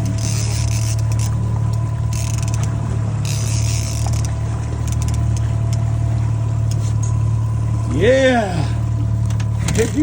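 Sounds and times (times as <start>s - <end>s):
fishing reel cranking: 0.0s - 1.4s, 2.0s - 5.5s
boat engine running: 0.0s - 10.0s.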